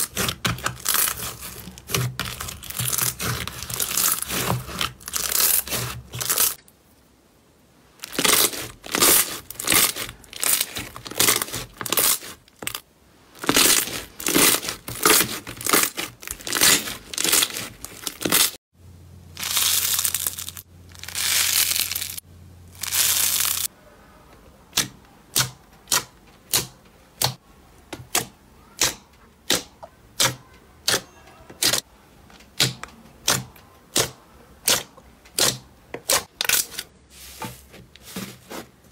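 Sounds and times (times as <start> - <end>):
slime squishing: 0.0 - 6.7, 8.0 - 18.6, 19.4 - 22.2, 22.8 - 23.7.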